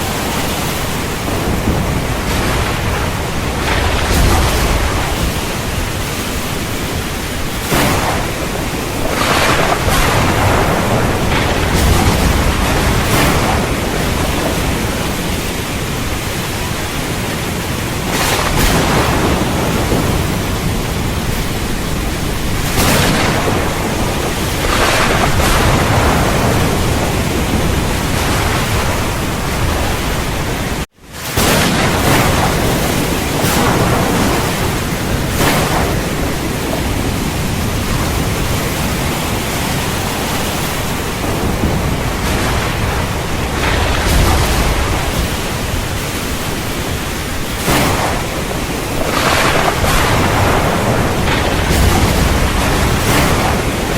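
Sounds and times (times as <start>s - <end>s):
heavy rain hissing: 0.0s - 53.9s
low thunder rumbling: 0.0s - 53.9s.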